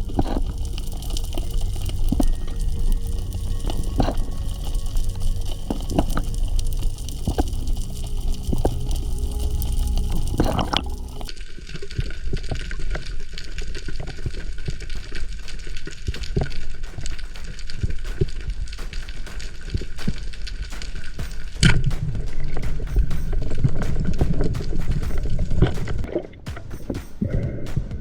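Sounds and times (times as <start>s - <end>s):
underwater water rush: 0.0s - 11.3s.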